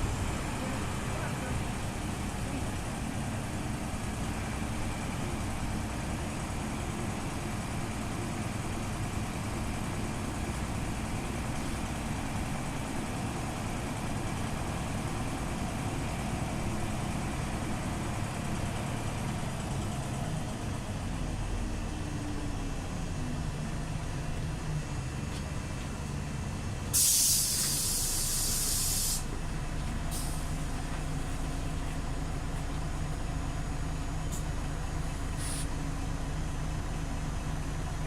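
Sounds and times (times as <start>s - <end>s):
bus engine running: 0.0s - 38.0s
hiss: 26.9s - 29.3s, 35.4s - 35.7s.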